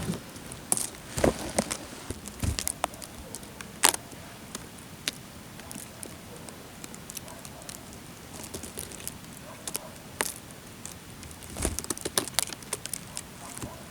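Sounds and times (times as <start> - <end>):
footsteps on twigs and dry leaves: 0.0 - 4.0, 10.2 - 13.7.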